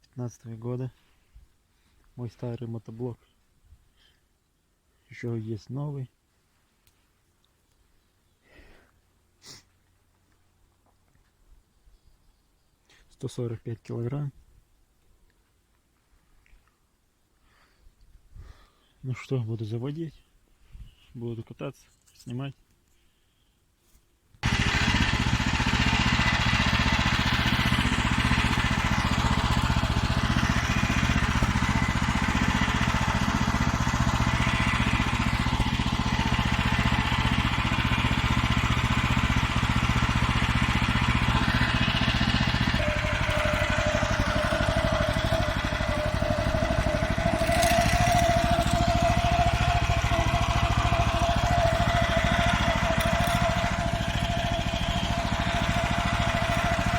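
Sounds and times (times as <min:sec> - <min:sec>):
walk-behind tractor engine running: 0:24.4 - 0:56.9.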